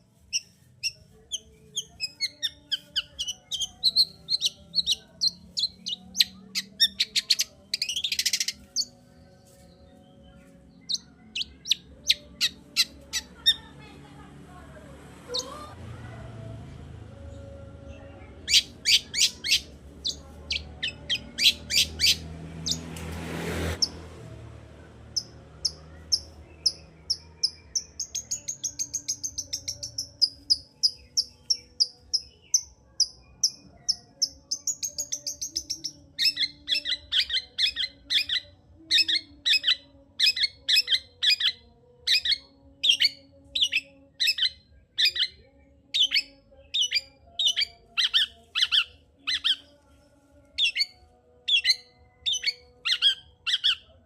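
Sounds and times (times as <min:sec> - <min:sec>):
harsh repeated bird calls: 0:00.0 - 0:09.0, 0:09.6 - 0:13.6, 0:18.4 - 0:24.1, 0:25.1 - 0:45.4, 0:46.0 - 0:49.7, 0:50.6 - 0:54.0
bird singing rapid sharp notes: 0:00.0 - 0:13.6, 0:18.4 - 0:23.0, 0:25.1 - 0:45.4, 0:50.6 - 0:53.9.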